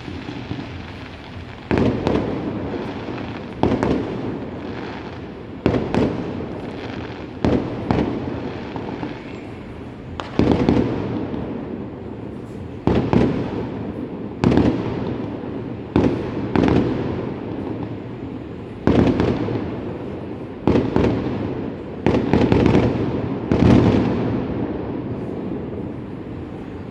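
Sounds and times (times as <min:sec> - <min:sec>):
fireworks booming: 0:00.0 - 0:26.9.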